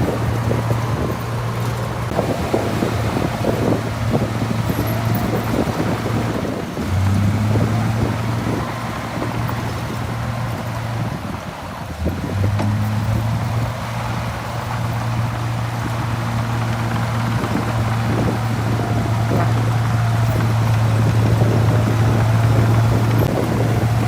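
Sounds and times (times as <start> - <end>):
diesel engine droning: 0.0 - 24.0.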